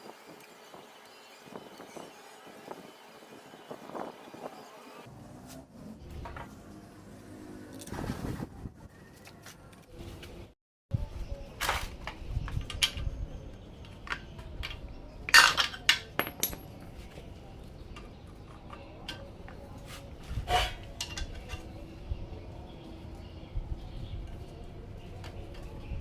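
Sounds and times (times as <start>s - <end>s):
metal tools clanking: 14.1s - 16.8s.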